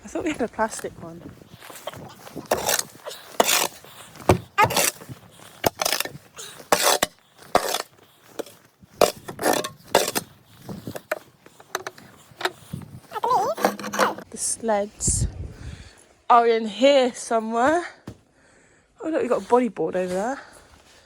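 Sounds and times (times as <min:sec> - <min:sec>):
objects scraping and rustling: 0:00.6 - 0:14.3.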